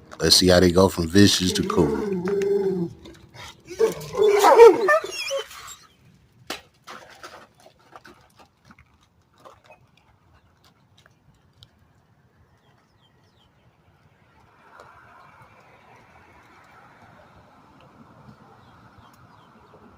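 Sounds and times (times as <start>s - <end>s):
clicks and knocks of dogs eating: 0.0s - 4.5s, 6.4s - 19.5s.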